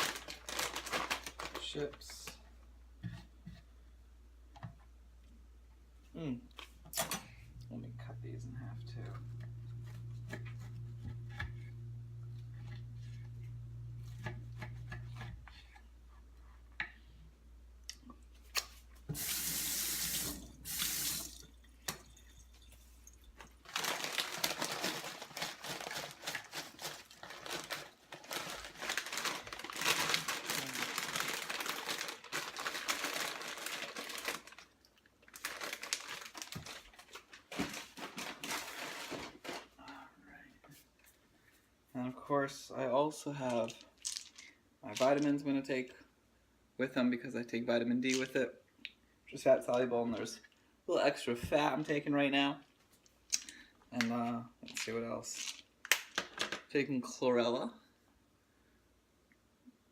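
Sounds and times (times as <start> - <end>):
low hum: 7.0 - 15.7.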